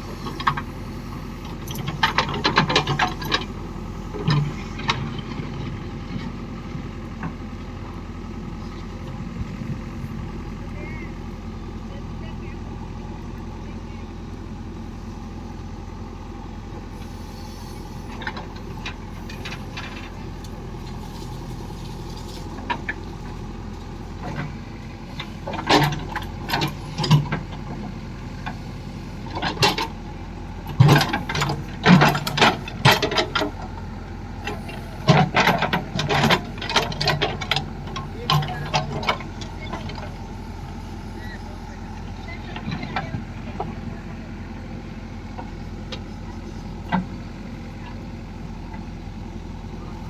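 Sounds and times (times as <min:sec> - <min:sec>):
engine running: 0:00.0 - 0:50.0.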